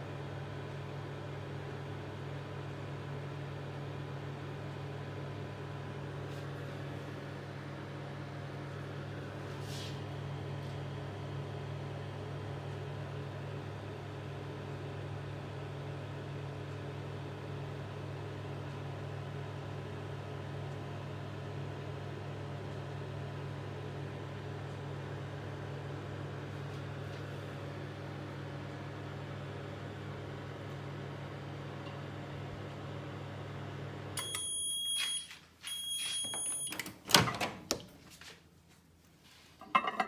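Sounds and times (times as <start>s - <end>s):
microwave oven humming: 0.0s - 40.0s.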